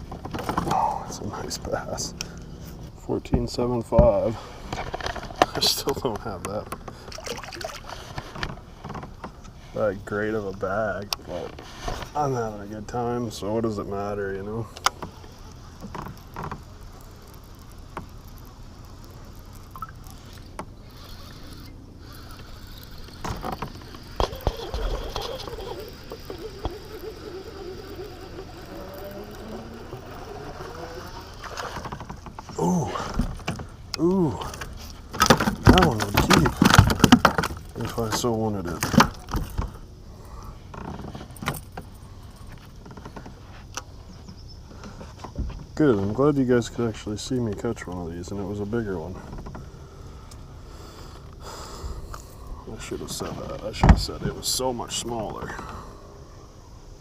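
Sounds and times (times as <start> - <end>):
fishing gear clicks and knocks: 0.0 - 3.4, 4.0 - 9.6, 14.7 - 39.9, 40.7 - 46.2
low steady hum: 0.0 - 57.0.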